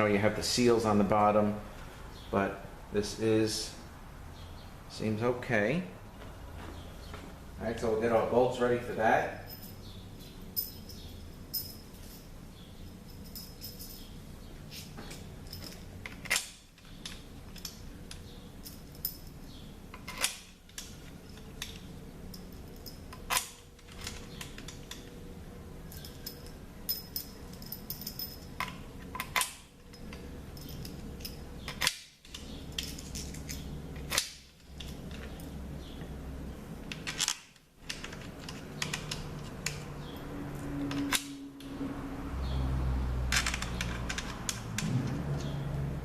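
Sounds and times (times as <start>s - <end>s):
low steady hum: 0.0s - 46.0s
metal bolts and tools clinking: 9.5s - 25.1s, 25.9s - 35.6s, 36.9s - 40.2s, 43.3s - 45.6s.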